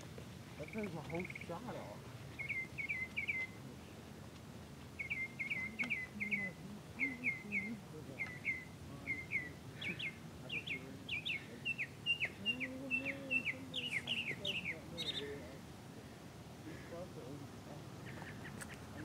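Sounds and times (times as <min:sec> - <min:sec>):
small bird chirping: 0:00.6 - 0:03.7, 0:05.0 - 0:15.5.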